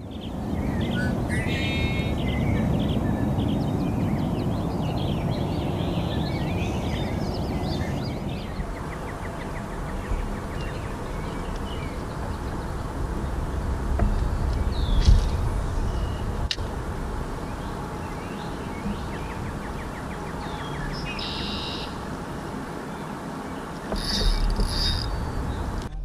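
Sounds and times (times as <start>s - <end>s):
small birds chirping: 0.0s - 25.9s
low outdoor rumble: 0.0s - 26.0s.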